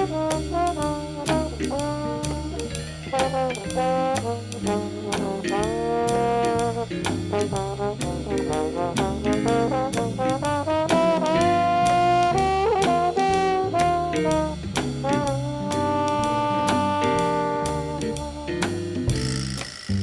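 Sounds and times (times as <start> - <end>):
bass line: 0.0 - 20.0
drum beat: 0.0 - 20.0
trombone: 0.0 - 20.0
trumpets: 0.0 - 20.0
saxophone: 10.8 - 14.3, 15.4 - 20.0.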